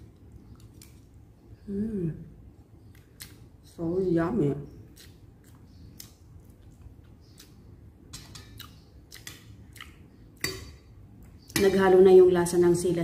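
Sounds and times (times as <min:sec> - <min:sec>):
person chewing and lip-smacking: 0:02.8 - 0:03.6, 0:04.8 - 0:10.4.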